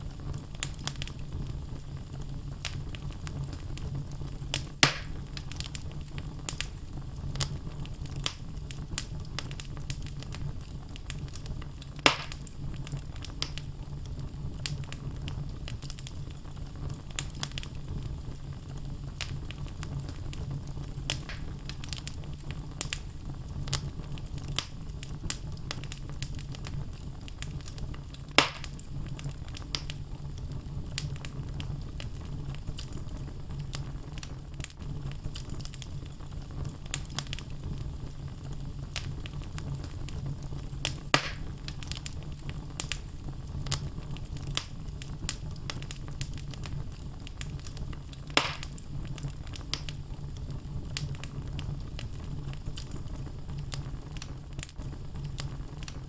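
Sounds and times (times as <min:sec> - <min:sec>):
fire low rumble: 0:00.0 - 0:56.0
logs crackling in fire: 0:00.0 - 0:56.0
loud fire pops: 0:00.0 - 0:56.0.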